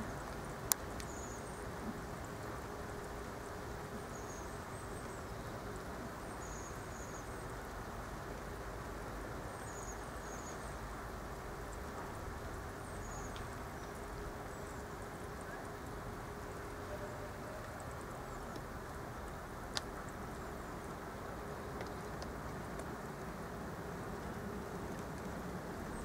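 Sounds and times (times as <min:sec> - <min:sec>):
small birds chirping: 0:00.1 - 0:01.7, 0:09.5 - 0:10.9, 0:11.6 - 0:18.7.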